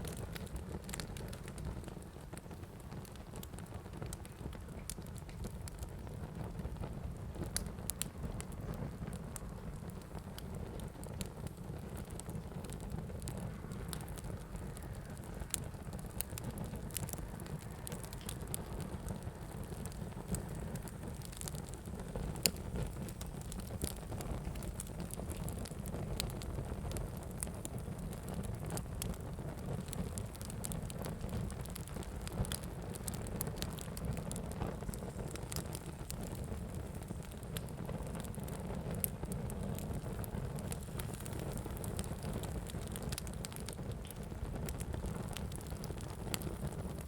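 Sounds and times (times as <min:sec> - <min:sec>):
fire crackling and popping: 0:00.0 - 0:47.0.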